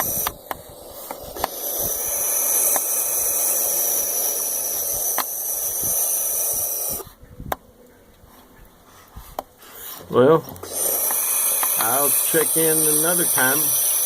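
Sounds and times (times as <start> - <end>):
owl beak clicks: 0.0 - 4.4, 10.8 - 12.6
owls hissing: 0.0 - 7.2, 10.6 - 14.0.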